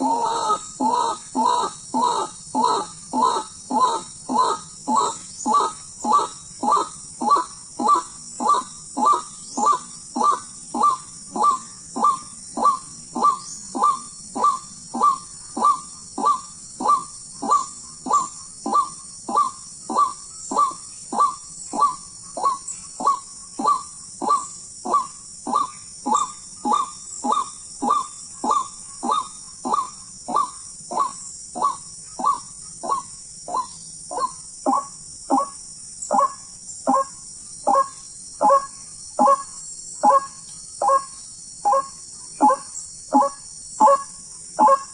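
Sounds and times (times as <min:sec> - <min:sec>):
steady high hiss: 0:00.0 - 0:44.9
waterhen calling: 0:36.1 - 0:39.4, 0:41.7 - 0:44.9.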